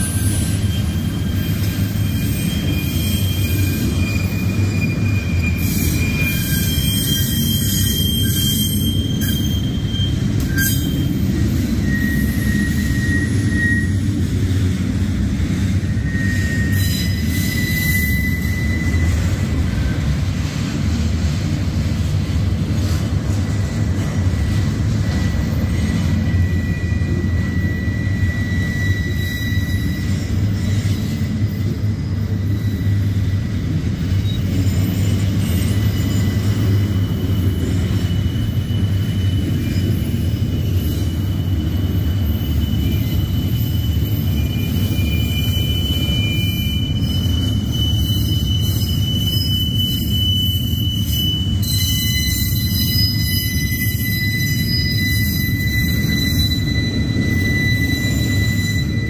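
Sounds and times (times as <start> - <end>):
high-pitched wheel squeals: 0.0 - 14.4, 15.7 - 20.4, 23.5 - 59.0
steel wheels rumbling on rail: 0.0 - 59.0.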